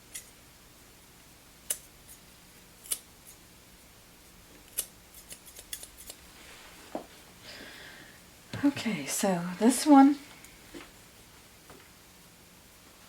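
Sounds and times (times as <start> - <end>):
shears snipping hair: 0.1 - 0.3, 1.6 - 3.4, 4.6 - 6.3.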